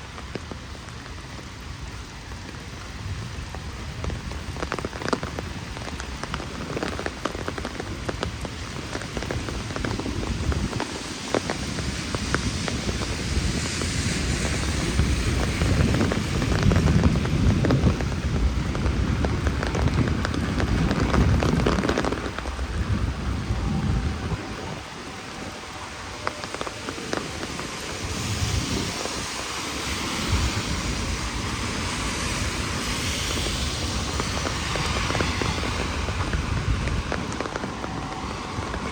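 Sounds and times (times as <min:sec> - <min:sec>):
heavy rain splashing on street: 0:00.0 - 0:38.9
deep rumble: 0:09.3 - 0:38.9.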